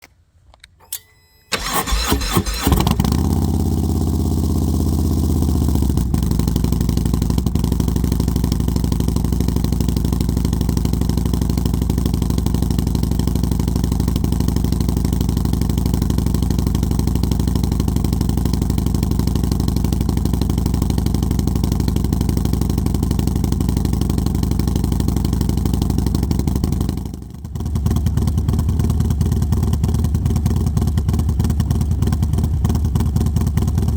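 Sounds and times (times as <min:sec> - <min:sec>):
motorcycle engine cranking: 0:00.6 - 0:04.0
motorcycle engine idling: 0:01.5 - 0:33.9.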